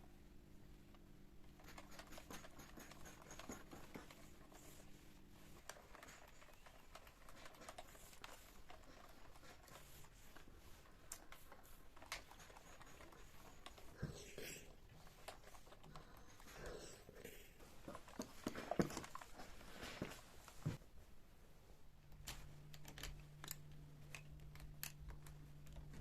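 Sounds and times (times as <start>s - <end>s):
low steady hum: 0.0s - 26.0s
light clicks and taps: 22.0s - 26.0s.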